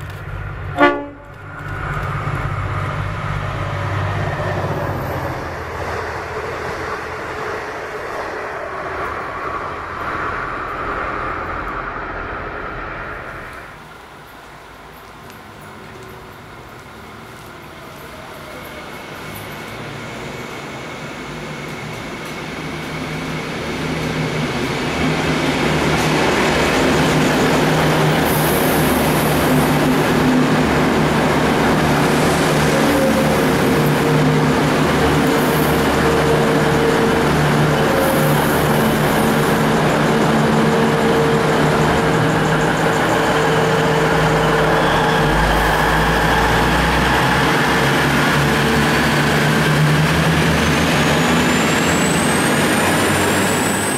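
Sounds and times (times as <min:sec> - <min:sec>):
diesel engine drone: 0:00.0 - 0:13.9, 0:23.0 - 0:53.9
wheel-on-rail noise: 0:00.0 - 0:53.9.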